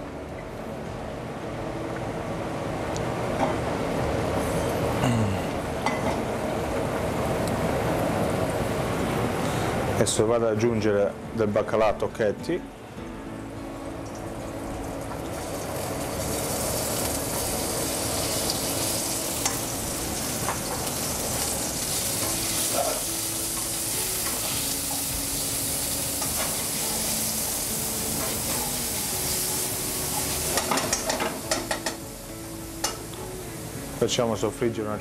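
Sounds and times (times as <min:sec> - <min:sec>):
fish sizzling in oil: 0:14.2 - 0:33.7.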